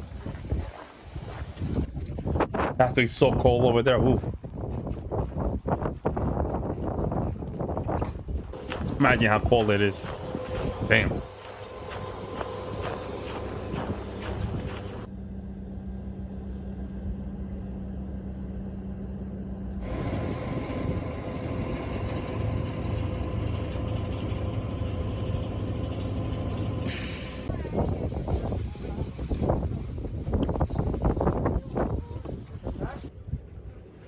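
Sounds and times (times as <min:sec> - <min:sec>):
train running hum: 0:00.0 - 0:02.4, 0:04.0 - 0:34.0
steady low tone: 0:08.6 - 0:27.9
air brake hiss: 0:26.9 - 0:27.5.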